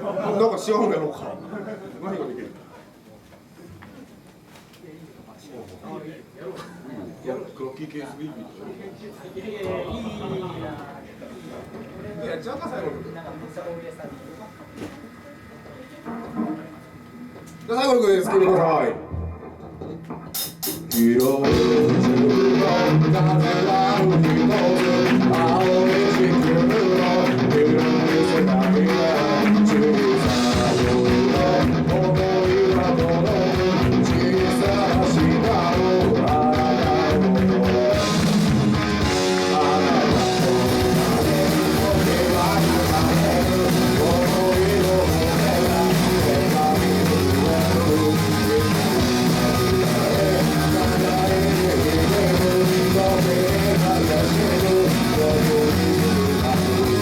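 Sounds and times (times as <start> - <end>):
electric guitars: 18.9 - 57.0
drums and cymbals: 19.1 - 23.0, 29.2 - 57.0.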